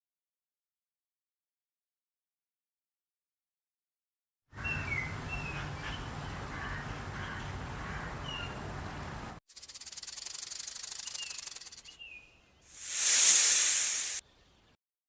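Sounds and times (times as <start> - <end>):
down-slurred bird chirps: 9.9 - 14.8.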